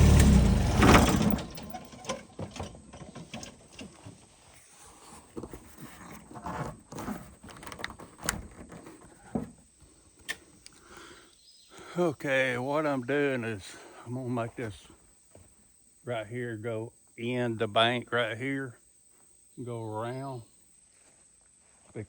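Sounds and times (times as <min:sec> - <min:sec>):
tractor engine shutting off: 0:00.0 - 0:04.3.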